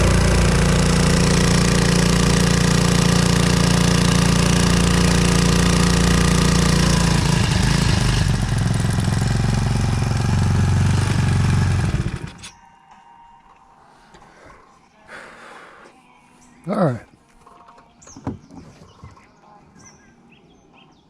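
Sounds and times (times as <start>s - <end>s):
outboard motor running: 0.0s - 12.5s.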